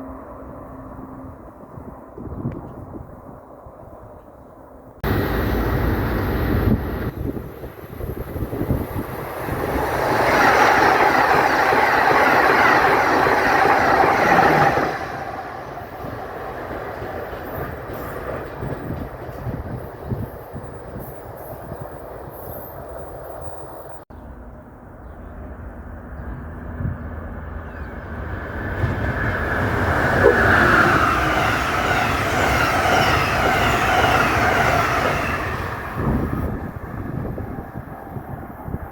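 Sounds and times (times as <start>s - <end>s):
train passing on rails: 0.0s - 38.9s
wheels rumbling: 4.0s - 20.9s.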